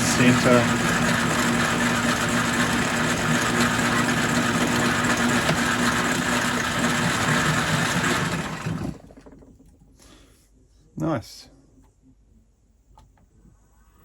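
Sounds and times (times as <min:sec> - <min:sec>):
metal lathe machining with hum: 0:00.0 - 0:07.6.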